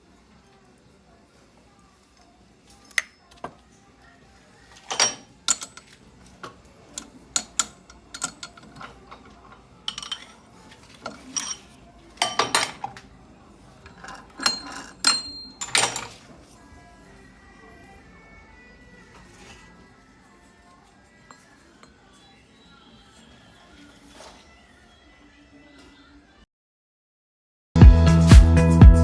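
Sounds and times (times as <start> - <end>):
metal objects clinking: 4.8 - 12.9, 13.8 - 16.3, 20.8 - 22.0.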